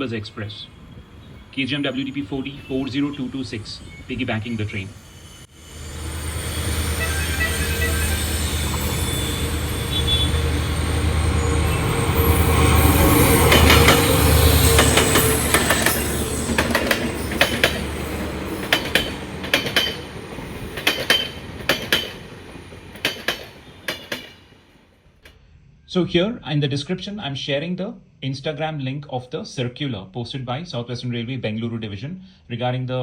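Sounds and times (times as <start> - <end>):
diesel locomotive engine drone: 0.0 - 26.4
train wheels clacking over rail joints: 11.8 - 24.7.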